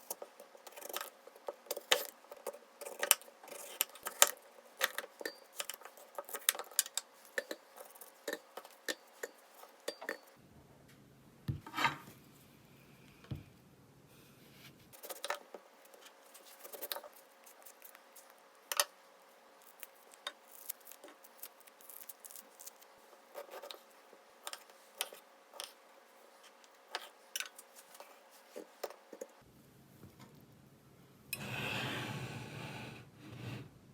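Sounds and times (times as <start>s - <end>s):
dishes and utensils clinking: 6.8s - 10.4s.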